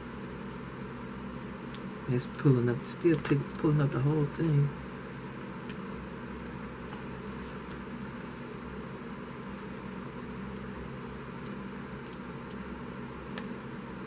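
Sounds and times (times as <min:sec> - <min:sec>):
low room hum: 0:00.0 - 0:14.0
small tool clicking on paper: 0:10.5 - 0:12.7.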